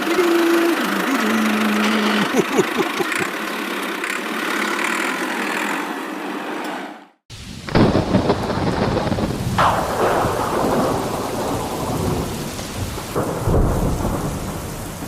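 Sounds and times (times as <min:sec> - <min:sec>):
mini truck engine running: 0:00.0 - 0:06.2.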